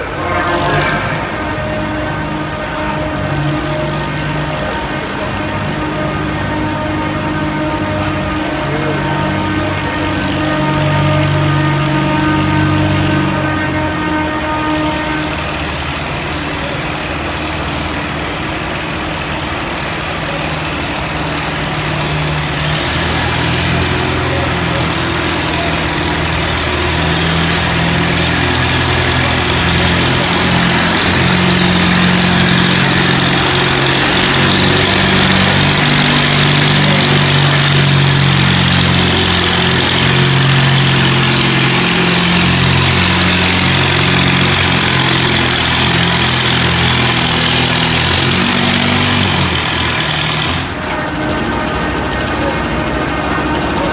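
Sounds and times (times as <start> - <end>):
tractor engine running hard: 0.0 - 53.9.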